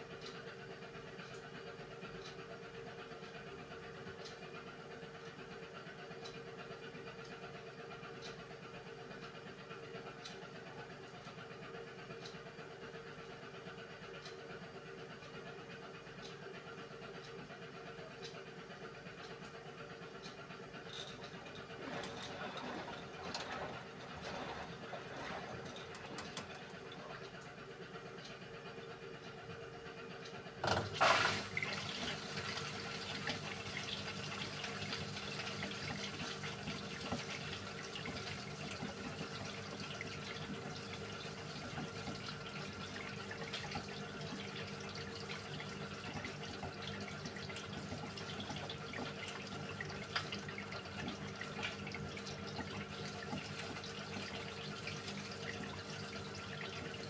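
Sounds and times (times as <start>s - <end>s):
washing machine filling with water: 19.3s - 28.7s, 30.4s - 57.0s
water running into drum: 21.6s - 27.2s, 30.6s - 57.0s.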